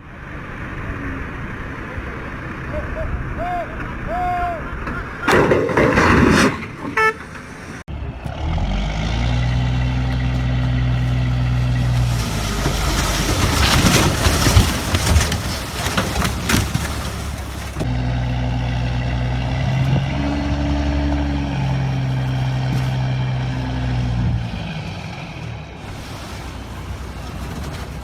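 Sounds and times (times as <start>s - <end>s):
loud clattering and knocks: 5.3s - 7.0s, 11.8s - 17.9s
truck engine humming: 6.6s - 28.0s.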